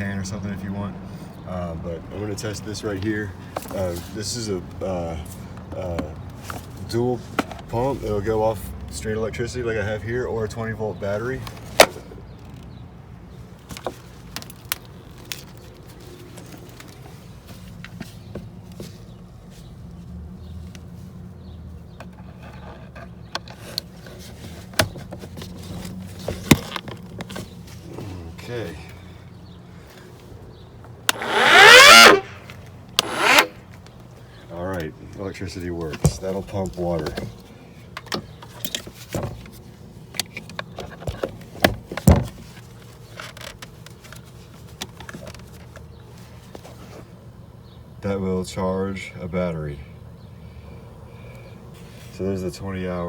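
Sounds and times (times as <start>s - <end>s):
electric water pump humming: 31.1s - 32.4s, 33.0s - 33.6s
hose and fittings clicking: 31.1s - 33.9s.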